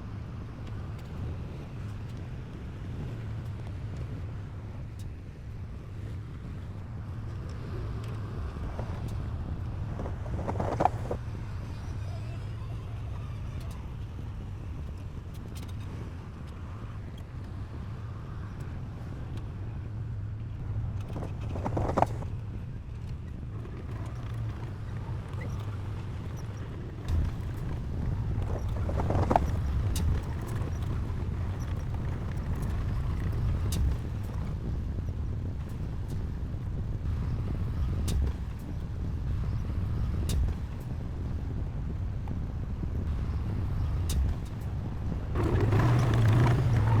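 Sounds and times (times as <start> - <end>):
diesel machine engine rumble: 0.2 - 47.0
scraping or squealing: 9.8 - 11.2, 21.0 - 22.3, 45.3 - 47.0.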